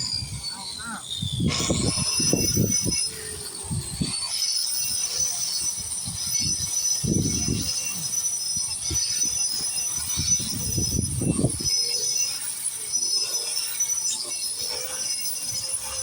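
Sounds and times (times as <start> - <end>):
angle grinder grinding concrete: 0.0 - 16.0.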